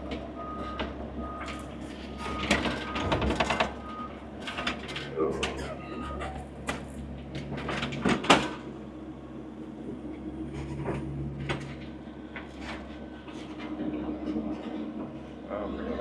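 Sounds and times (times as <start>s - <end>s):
loader knocks and clunks: 0.0s - 8.8s
diesel tractor engine running: 0.0s - 16.0s.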